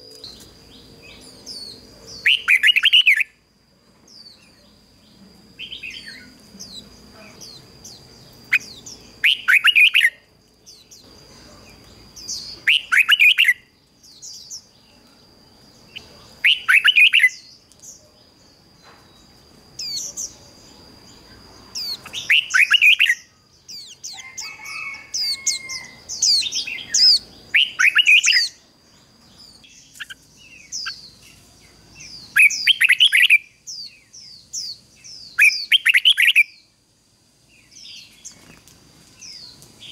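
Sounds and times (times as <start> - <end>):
steady high-pitched whine: 0.0 - 39.9
bird singing bubbling phrases: 8.4 - 10.2.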